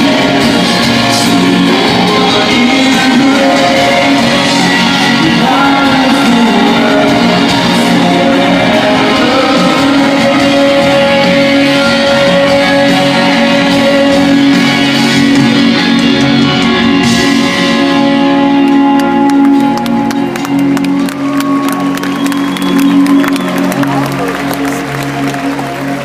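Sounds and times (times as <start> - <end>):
electric guitar: 0.0 - 26.0
live rock band playing: 0.0 - 26.0
crowd clapping: 18.4 - 26.0.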